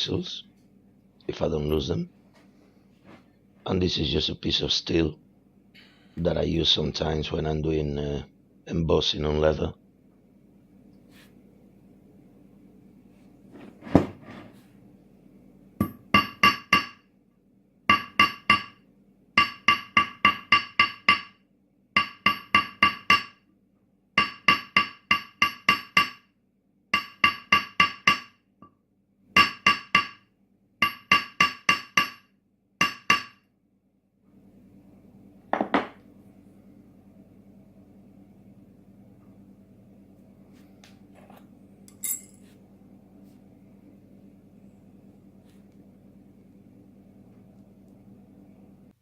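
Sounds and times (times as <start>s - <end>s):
hammer tapping steel: 15.8s - 17.0s, 17.9s - 18.8s, 19.4s - 21.4s, 22.0s - 23.4s, 24.2s - 26.2s, 27.0s - 28.4s, 29.4s - 30.2s, 30.8s - 33.4s
dull knock: 35.5s - 36.0s.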